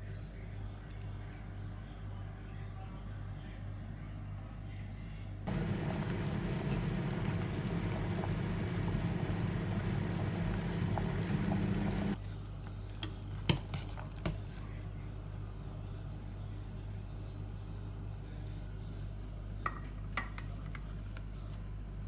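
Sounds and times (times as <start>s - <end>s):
food sizzling in a pan: 5.5s - 15.2s.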